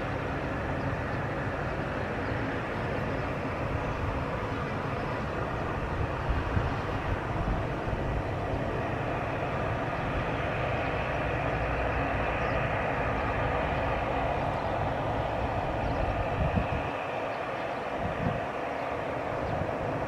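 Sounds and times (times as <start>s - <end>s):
plane engines roaring: 0.0s - 20.0s.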